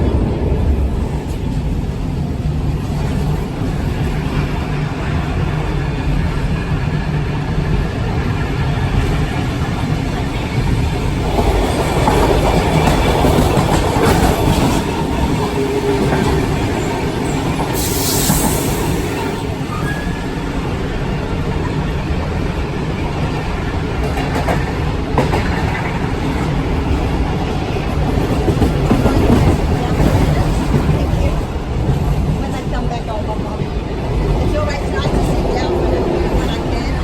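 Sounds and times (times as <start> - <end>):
train wheels rumbling on rail: 0.0 - 37.0
train clicks: 7.7 - 20.0, 22.0 - 37.0.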